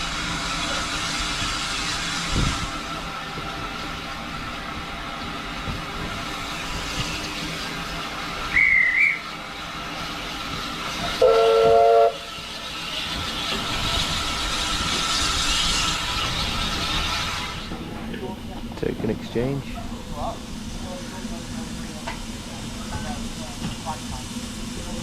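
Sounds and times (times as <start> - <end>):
steam hiss: 0.0 - 25.0
steam train running: 0.0 - 25.0
brief high whistle: 8.5 - 9.2
steam locomotive whistle blast: 8.5 - 9.3, 11.2 - 12.4.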